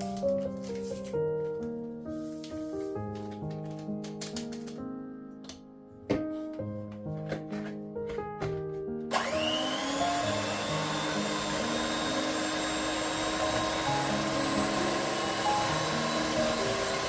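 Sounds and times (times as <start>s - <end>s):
soft background music: 0.0s - 17.0s
appliance motor whirring: 9.1s - 17.0s.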